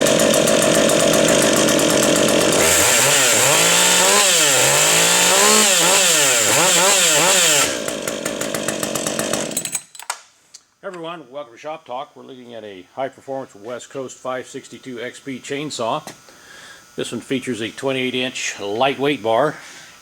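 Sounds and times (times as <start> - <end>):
chainsaw running at full throttle: 0.0 - 9.8.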